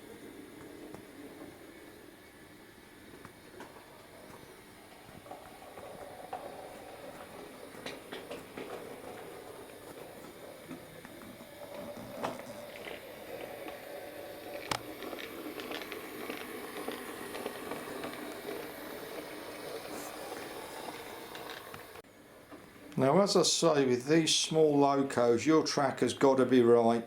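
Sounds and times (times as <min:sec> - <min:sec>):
wheels clicking over rail joints: 0:03.1 - 0:22.0
model train motor whirring: 0:03.5 - 0:22.0.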